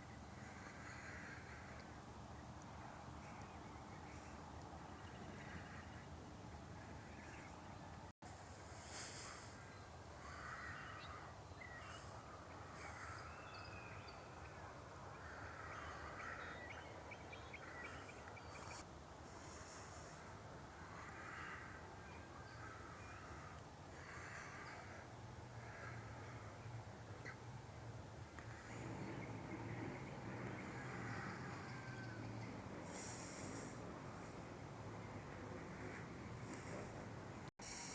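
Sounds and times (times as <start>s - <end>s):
bird cawing: 0.4s - 1.8s, 10.2s - 12.0s, 20.8s - 26.4s, 30.6s - 32.2s.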